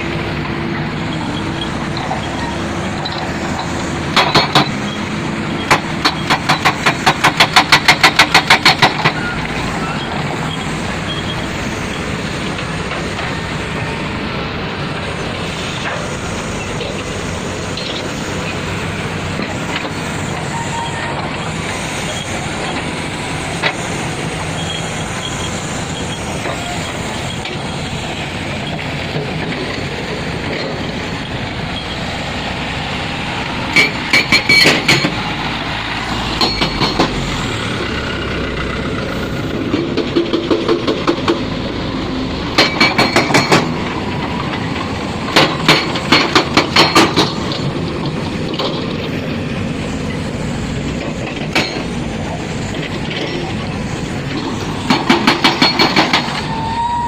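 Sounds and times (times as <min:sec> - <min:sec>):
heavy machinery running: 0:00.0 - 0:57.0
rapid metallic clanking: 0:50.9 - 0:56.4.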